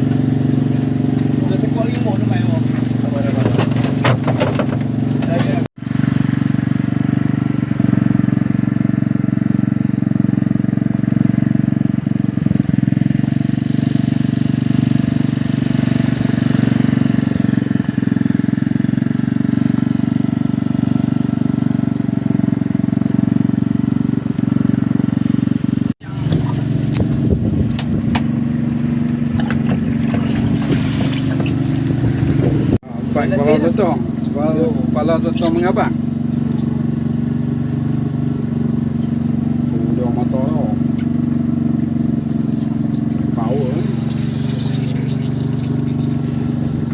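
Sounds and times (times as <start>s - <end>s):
boat engine running: 0.0s - 46.9s.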